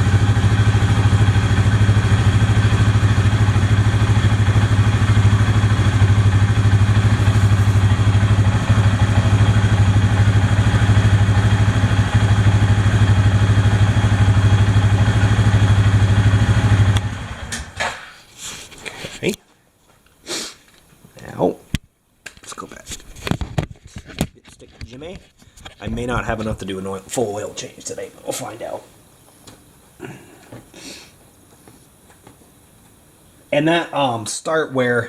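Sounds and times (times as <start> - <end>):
atv engine idling: 0.0 - 17.7.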